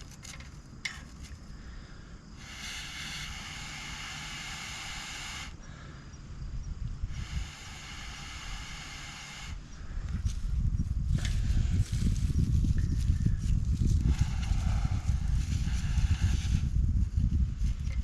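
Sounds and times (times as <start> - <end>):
long hisses of blown air: 2.4 - 5.6, 7.0 - 9.6, 14.0 - 16.9.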